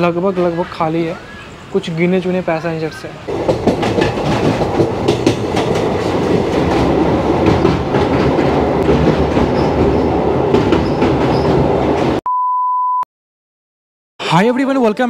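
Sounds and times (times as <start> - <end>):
train wheels rumbling on rail: 1.8 - 12.2
wheels clacking over rail joints: 3.2 - 12.2.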